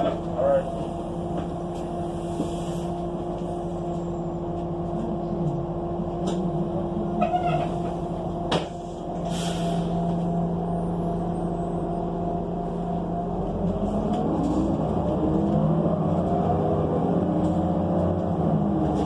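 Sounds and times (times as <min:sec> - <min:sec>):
bus engine humming: 0:00.0 - 0:19.0
short air hiss: 0:09.3 - 0:09.9.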